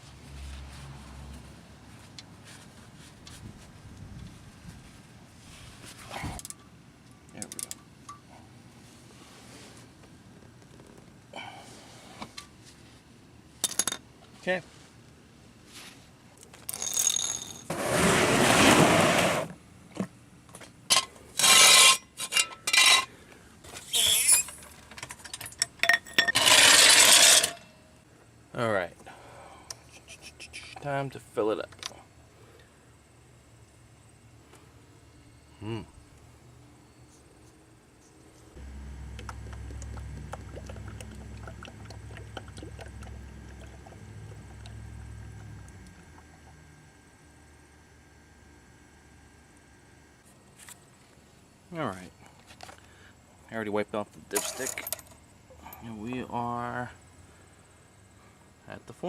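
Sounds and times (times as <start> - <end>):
metal scraping and rubbing: 21.4 - 23.1, 23.7 - 24.7, 26.2 - 27.7
oil glugging from a bottle: 38.6 - 46.6.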